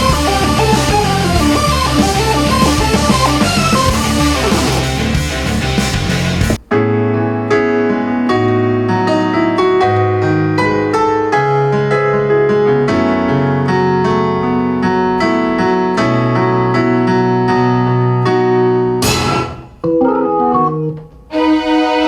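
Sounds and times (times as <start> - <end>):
electronic keyboard chords: 0.0 - 7.6, 19.8 - 21.3.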